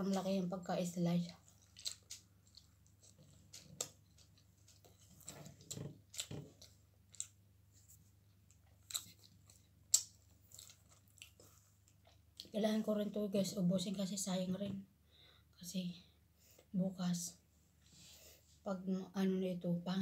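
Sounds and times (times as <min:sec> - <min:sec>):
person chewing food: 0:01.4 - 0:12.5.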